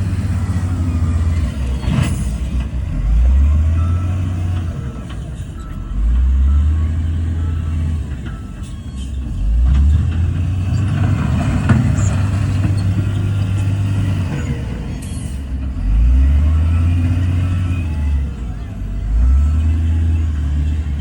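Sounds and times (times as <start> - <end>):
heavy diesel engine revving: 0.0 - 21.0.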